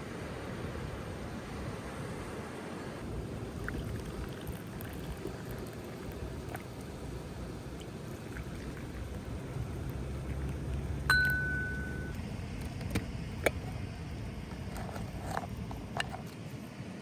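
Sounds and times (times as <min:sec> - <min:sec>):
tableware clinking: 0:11.1 - 0:12.2.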